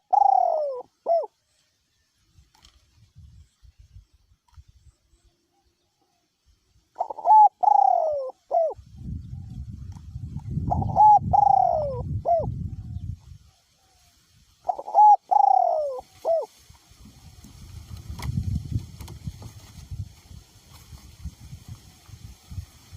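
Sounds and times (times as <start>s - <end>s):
dove cooing: 0.0s - 1.4s, 6.9s - 9.5s, 10.6s - 13.0s, 14.6s - 16.5s
wind rumble on microphone: 2.3s - 4.9s, 8.1s - 13.6s, 15.8s - 22.9s.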